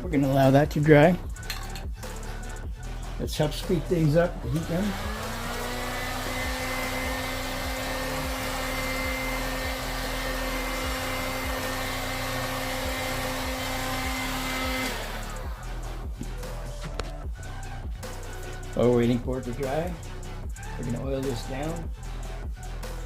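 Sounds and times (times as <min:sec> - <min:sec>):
heat gun fan whirring: 0:03.7 - 0:15.7.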